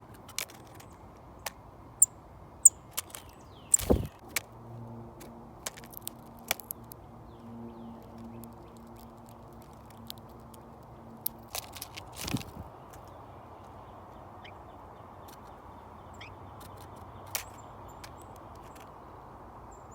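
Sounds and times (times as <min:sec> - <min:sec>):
birds pecking and tapping: 0:00.0 - 0:01.6, 0:02.6 - 0:04.5, 0:05.2 - 0:13.8, 0:16.5 - 0:19.1
high bird chirps: 0:02.0 - 0:04.1.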